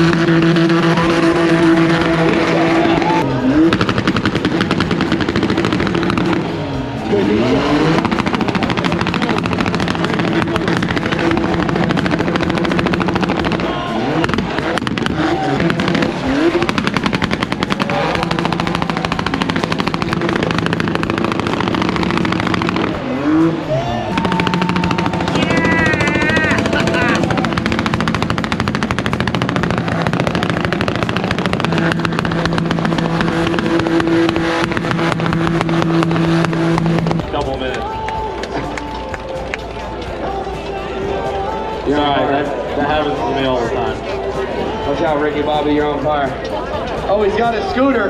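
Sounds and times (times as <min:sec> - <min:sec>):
car engine revving with crackle: 0:00.0 - 0:37.8.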